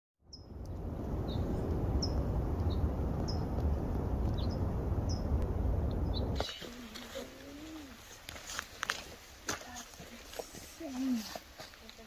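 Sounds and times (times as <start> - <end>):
bird chirping: 0.3 - 0.6, 1.2 - 3.6, 4.3 - 6.6
steady low rushing noise: 0.4 - 6.5.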